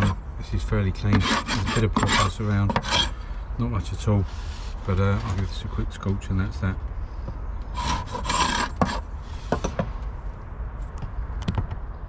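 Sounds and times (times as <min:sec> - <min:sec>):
rasping scrape on timber: 0:00.0 - 0:00.2, 0:01.0 - 0:03.2, 0:07.7 - 0:09.8.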